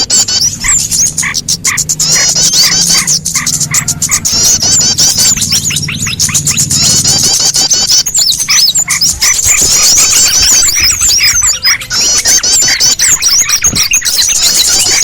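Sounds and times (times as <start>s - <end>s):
songbirds chorus chirping: 0.0s - 15.0s.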